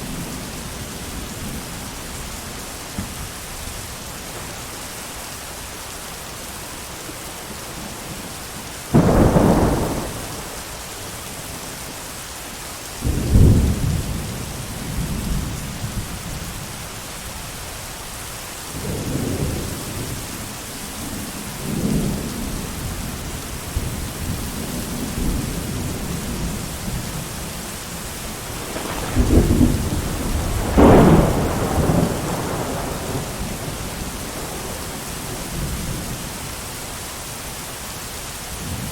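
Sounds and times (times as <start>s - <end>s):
heavy rain: 0.0s - 38.9s
thunder claps and rumbles: 8.9s - 11.1s, 13.0s - 16.6s, 21.2s - 36.2s.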